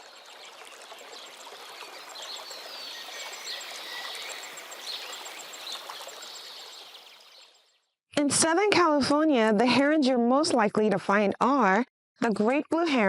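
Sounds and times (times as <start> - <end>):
small birds chirping: 0.0 - 7.9.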